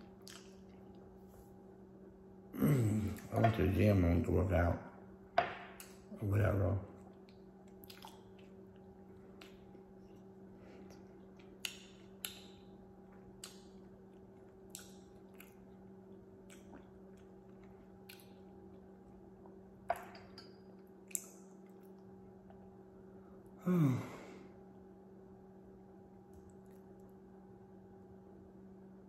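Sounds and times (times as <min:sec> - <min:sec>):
steady low hum: 0:00.0 - 0:29.0
lip smacks and chewing clicks: 0:00.1 - 0:01.1, 0:07.0 - 0:19.6, 0:21.0 - 0:22.7.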